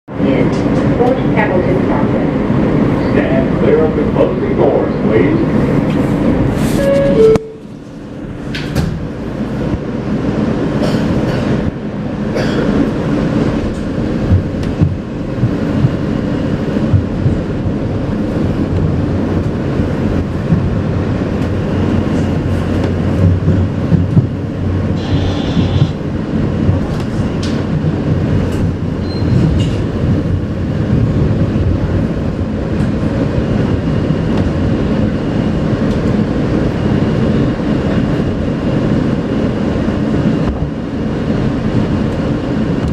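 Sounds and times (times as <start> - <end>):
wheels rumbling on rail: 0.1 - 42.9
high wheel squeal: 25.0 - 26.0.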